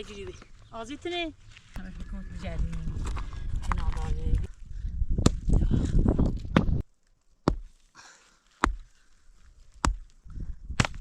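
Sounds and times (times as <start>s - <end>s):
axe chopping wood: 5.2s - 5.4s, 7.4s - 7.8s, 8.5s - 8.9s, 9.7s - 10.1s, 10.7s - 11.0s.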